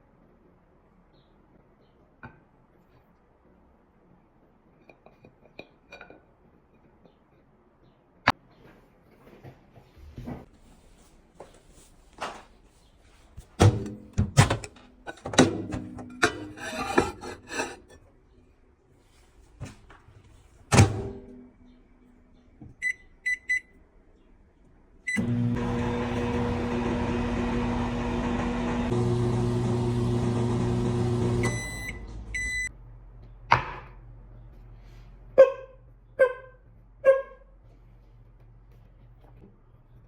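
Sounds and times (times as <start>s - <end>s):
microwave keypad beeps: 22.8s - 23.7s, 31.4s - 32.7s
microwave electrical hum: 24.9s - 34.4s.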